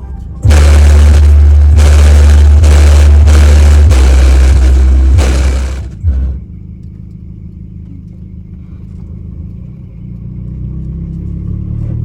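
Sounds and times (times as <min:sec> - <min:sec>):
vehicle engine running: 0:00.0 - 0:12.0
loud deep bass: 0:00.4 - 0:06.6.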